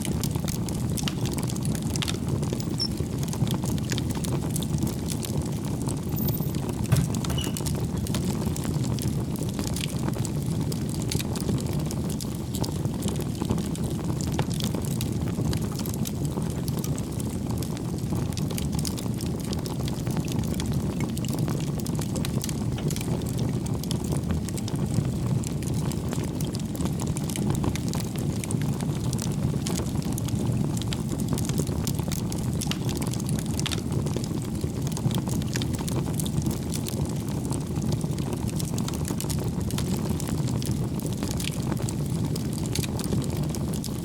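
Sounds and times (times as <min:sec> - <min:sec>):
fire burning in fireplace: 0:00.0 - 0:44.0
fire crackling and popping: 0:00.0 - 0:44.0.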